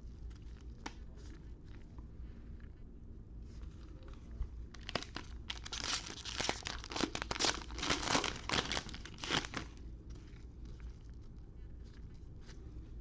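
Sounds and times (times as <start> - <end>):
wrapper crinkling and tearing: 4.7 - 9.8.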